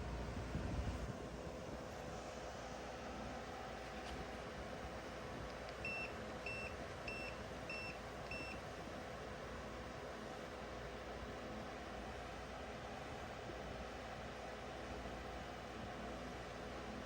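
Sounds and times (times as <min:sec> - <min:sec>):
air conditioner running: 0:00.0 - 0:17.0.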